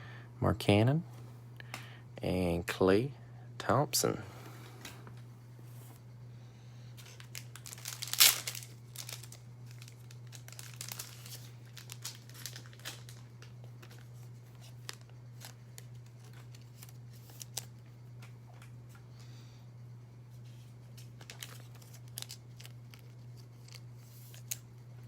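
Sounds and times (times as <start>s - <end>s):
wrapper and cards crinkling: 7.0s - 17.7s, 21.0s - 24.6s
wrapper ripping: 7.0s - 17.7s, 21.2s - 24.6s.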